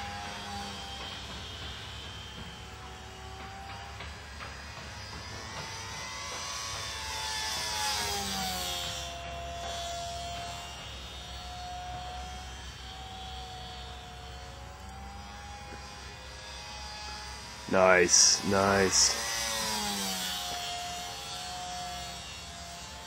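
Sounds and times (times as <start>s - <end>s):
model airplane motor droning: 0.0s - 23.0s.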